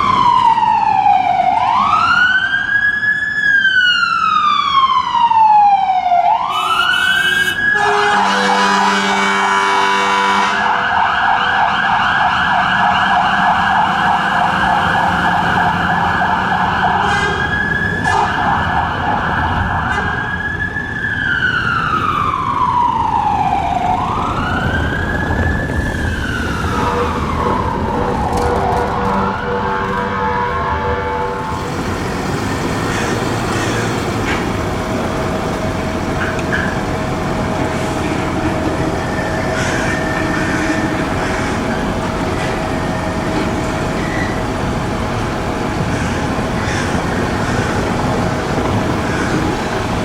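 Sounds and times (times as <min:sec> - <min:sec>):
fire engine siren wailing: 0:00.0 - 0:50.0
air horn blast: 0:06.5 - 0:10.8, 0:17.0 - 0:17.5, 0:28.9 - 0:31.7.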